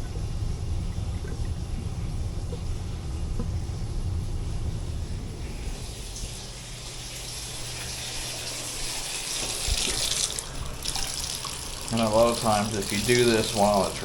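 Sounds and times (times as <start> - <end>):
hot water pouring into drain line: 5.8 - 14.0.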